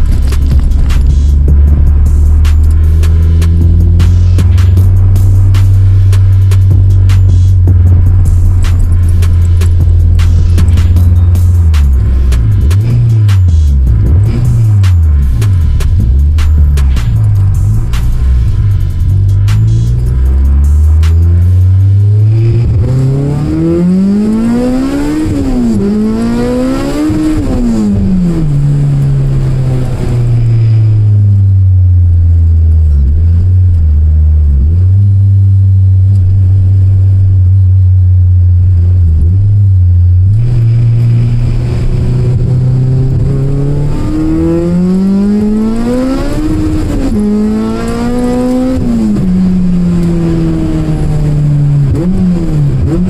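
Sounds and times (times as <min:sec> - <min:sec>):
four-cylinder engine revving: 0:00.0 - 0:53.0.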